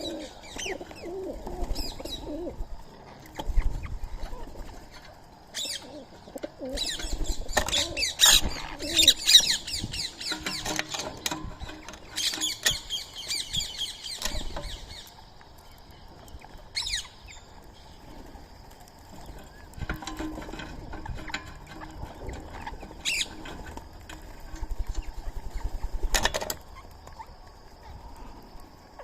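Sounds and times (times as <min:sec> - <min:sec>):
birds chirping rapidly: 0:00.0 - 0:02.6, 0:03.5 - 0:18.3, 0:21.1 - 0:23.7
wing flaps: 0:19.2 - 0:26.6.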